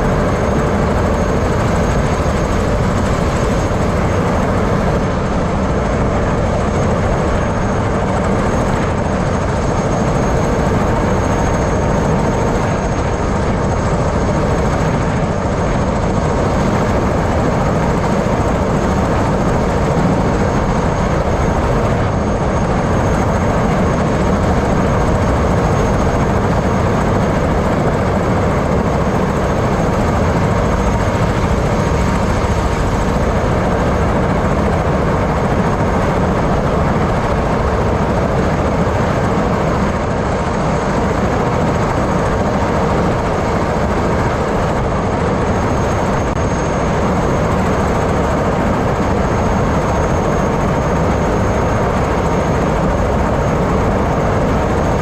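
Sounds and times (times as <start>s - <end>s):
helicopter engine and rotor noise: 0.0s - 55.0s.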